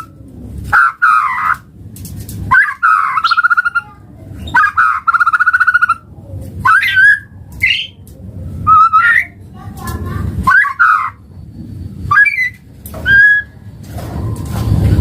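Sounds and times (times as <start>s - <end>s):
bird singing rapid trills: 2.5s - 6.0s, 6.7s - 8.0s
rising whistled bird notes: 12.1s - 13.6s.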